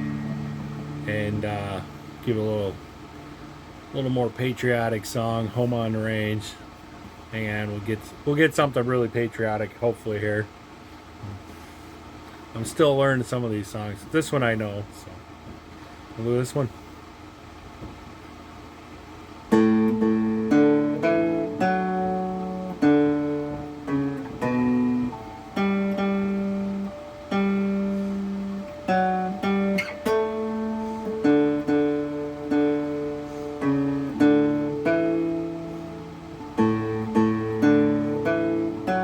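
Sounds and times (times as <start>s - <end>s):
cigar box guitar melody: 0.0s - 10.2s, 18.8s - 39.0s.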